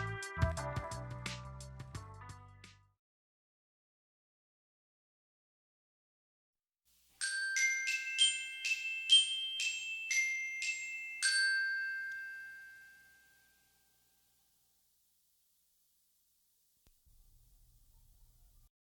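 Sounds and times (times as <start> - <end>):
glockenspiel-like chime melody: 7.2 - 14.0.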